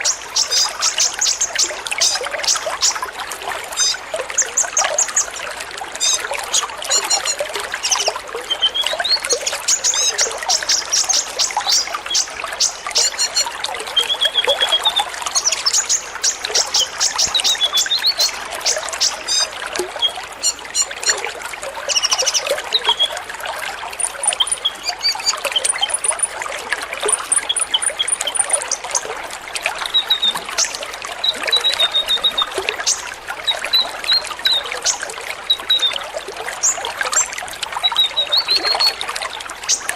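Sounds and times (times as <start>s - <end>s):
sunbirds chirping and twittering: 0.0s - 3.0s, 6.0s - 21.2s, 21.9s - 23.1s.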